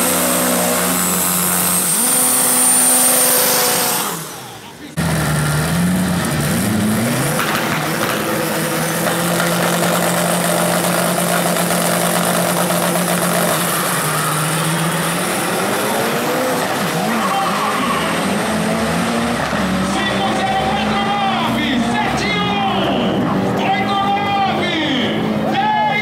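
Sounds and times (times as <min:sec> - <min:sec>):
cars accelerating through gears: 0:00.0 - 0:24.3
race car engines revving: 0:00.0 - 0:26.0.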